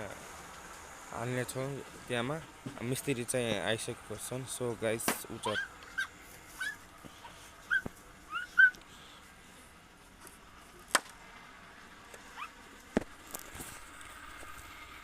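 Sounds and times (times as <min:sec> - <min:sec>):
animal whimpering: 0:05.4 - 0:08.8, 0:12.4 - 0:12.6.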